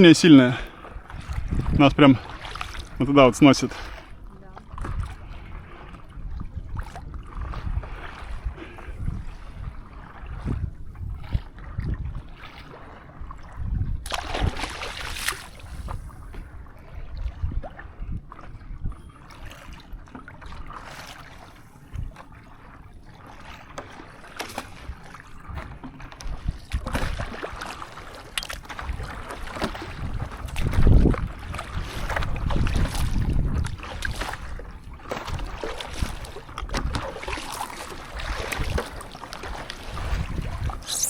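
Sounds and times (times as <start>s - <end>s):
water splashing around paddleboards: 0.0s - 41.0s
wind buffeting microphone: 0.9s - 3.0s, 3.8s - 19.8s, 28.8s - 37.2s, 38.2s - 40.9s.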